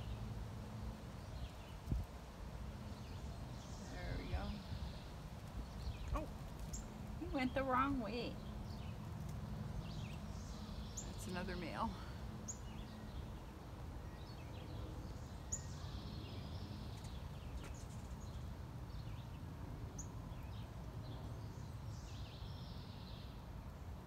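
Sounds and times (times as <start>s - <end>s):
steady low rumble: 0.0s - 17.6s
soft bird twittering: 2.8s - 19.4s.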